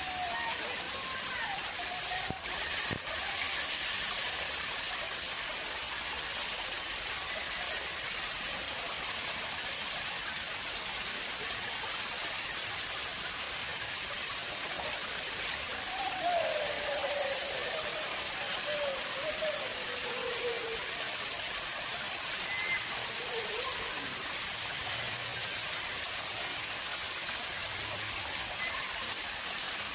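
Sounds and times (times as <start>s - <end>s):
water splashing into pond: 0.0s - 29.9s.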